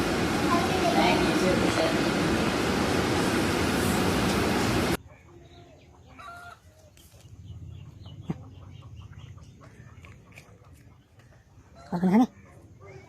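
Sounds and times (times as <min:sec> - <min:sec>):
loud even rushing noise: 0:00.0 - 0:05.0.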